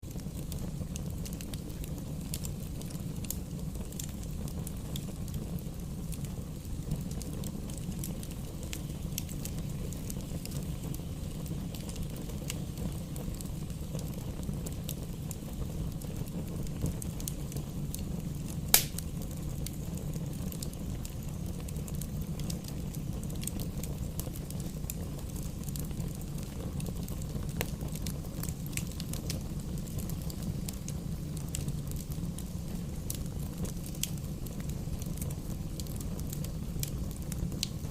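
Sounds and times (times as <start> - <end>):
low rumble of flame: 0.0 - 37.9
sharp loud pop: 18.7 - 19.0
wood crackling: 18.7 - 21.2.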